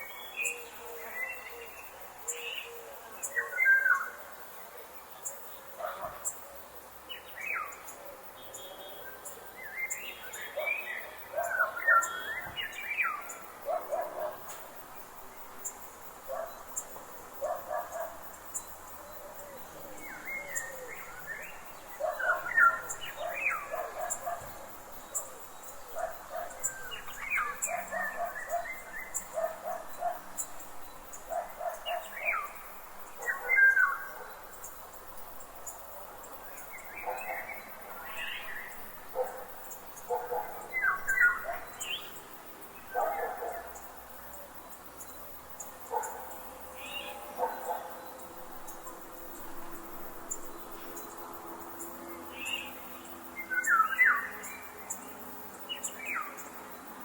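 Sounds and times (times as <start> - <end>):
birds singing and calling: 0.0 - 4.3, 5.2 - 56.9.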